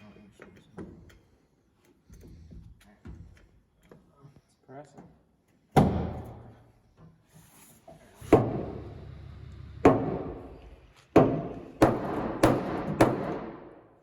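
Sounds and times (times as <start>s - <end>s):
knocks on sheet metal: 9.8s - 10.4s, 11.2s - 13.8s.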